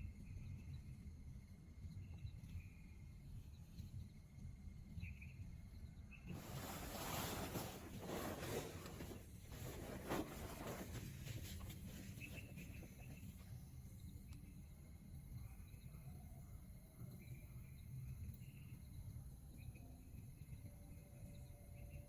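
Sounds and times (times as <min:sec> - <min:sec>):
insects chirping: 0:00.0 - 0:22.0
rustling crackling noise: 0:06.3 - 0:13.4.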